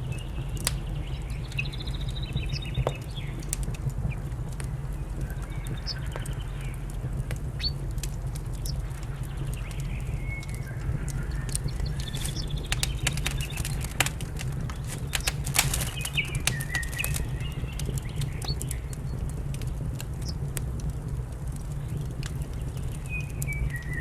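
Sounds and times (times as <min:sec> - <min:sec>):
low rumble: 0:00.0 - 0:24.0
small birds chirping: 0:00.0 - 0:24.0
wood fire crackling: 0:00.0 - 0:24.0.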